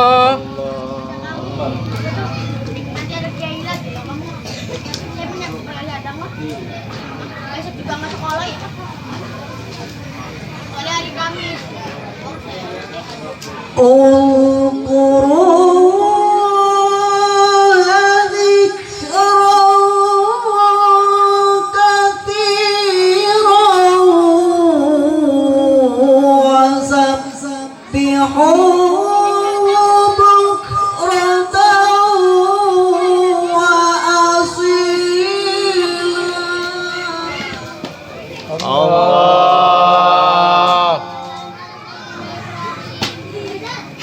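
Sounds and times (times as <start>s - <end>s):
person reciting in high voice: 13.7s - 44.0s.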